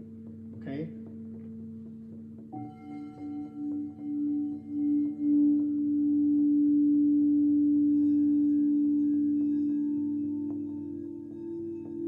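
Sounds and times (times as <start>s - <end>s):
singing bowl ringing: 2.5s - 12.0s.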